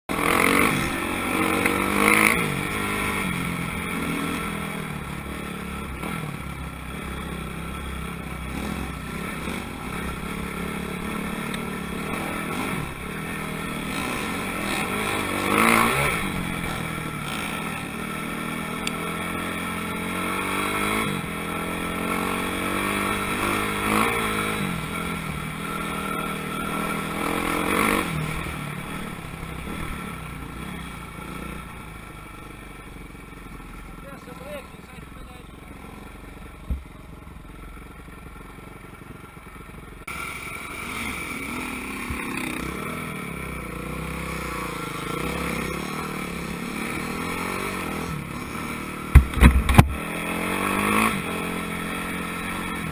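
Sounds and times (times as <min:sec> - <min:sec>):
motocross motorcycles revving: 0:00.1 - 0:52.9.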